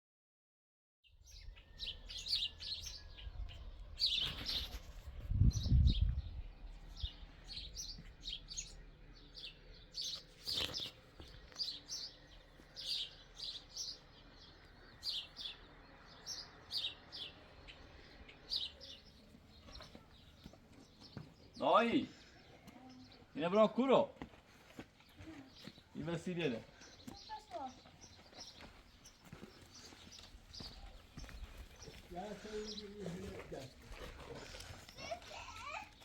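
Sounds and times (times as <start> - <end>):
small birds chirping: 1.1 - 36.0
low rumble: 2.9 - 10.0.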